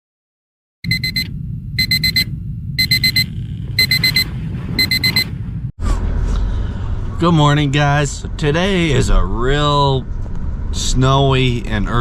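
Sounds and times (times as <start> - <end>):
digital alarm clock beeping: 0.8 - 5.3
low rumble: 0.8 - 12.0.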